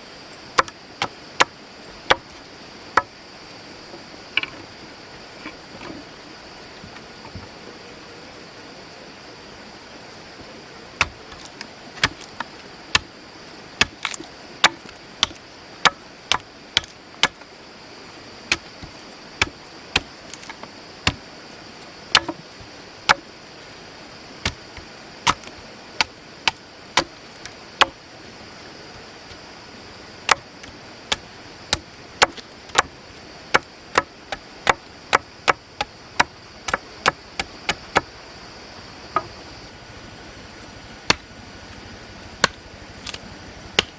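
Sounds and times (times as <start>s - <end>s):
blade chopping wood: 0.6s - 1.5s, 11.0s - 13.1s, 13.8s - 17.4s, 18.5s - 21.2s, 22.1s - 23.3s, 24.5s - 28.0s, 30.3s - 38.1s, 41.1s - 41.3s, 42.4s - 43.2s.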